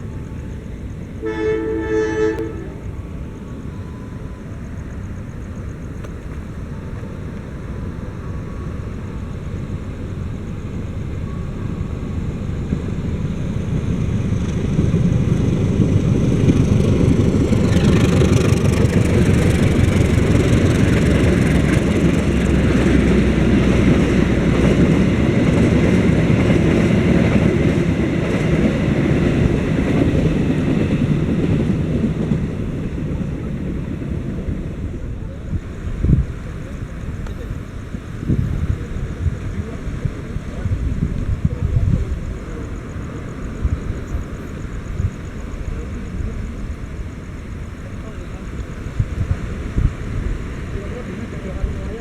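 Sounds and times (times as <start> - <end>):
diesel train passing: 0.0 - 52.0
wheels rattling and hissing: 2.8 - 52.0.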